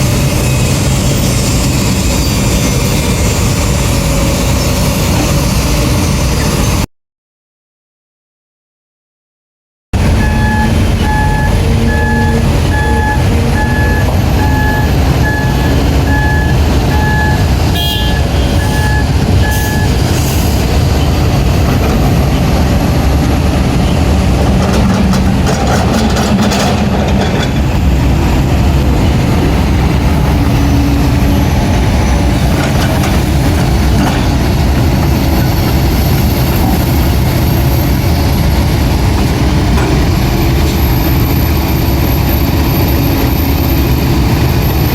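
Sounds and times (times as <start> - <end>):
heavy diesel engines under load: 0.0 - 6.9, 10.0 - 44.9
reversing alarm beeping: 10.1 - 20.1.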